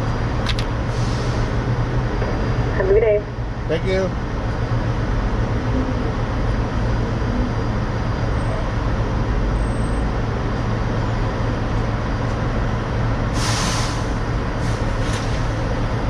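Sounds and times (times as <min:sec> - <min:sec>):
diesel trucks idling: 0:00.0 - 0:16.0
loud hiss: 0:13.4 - 0:15.3.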